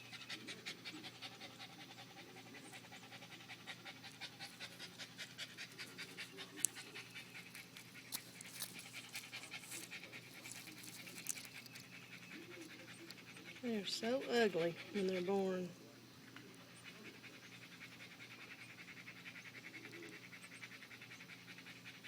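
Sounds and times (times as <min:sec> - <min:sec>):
rapid panting: 0:00.2 - 0:15.4.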